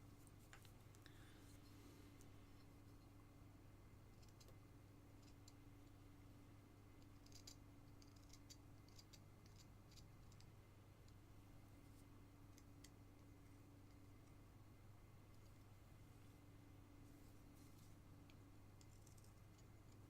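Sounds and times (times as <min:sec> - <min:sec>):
low steady hum: 0:00.0 - 0:20.0
knife carving wood: 0:07.0 - 0:10.5.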